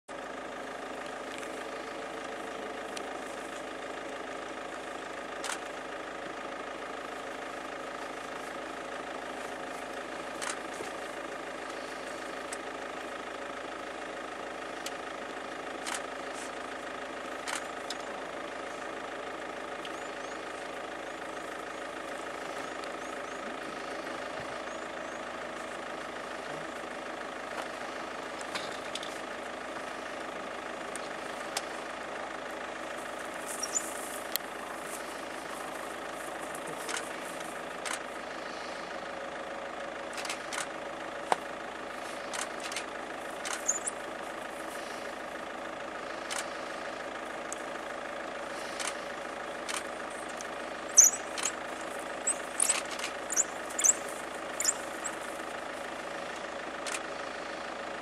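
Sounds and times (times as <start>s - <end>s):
vehicle engine idling: 0.1s - 58.0s
sharp clicks: 42.3s - 44.0s, 48.8s - 51.6s, 52.2s - 55.2s, 56.8s - 57.0s.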